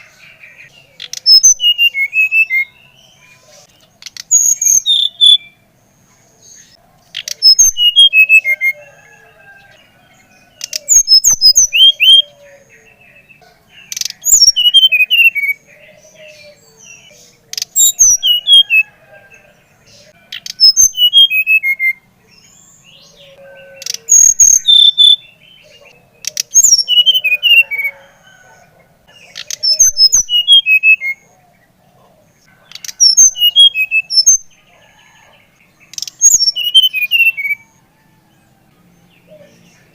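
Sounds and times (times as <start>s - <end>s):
songbird whistled phrases: 1.0s - 5.6s, 7.1s - 8.8s, 10.6s - 12.6s, 13.8s - 18.9s, 20.4s - 22.0s, 23.2s - 25.3s, 26.2s - 28.1s, 29.3s - 31.2s, 32.8s - 34.5s, 35.9s - 37.7s.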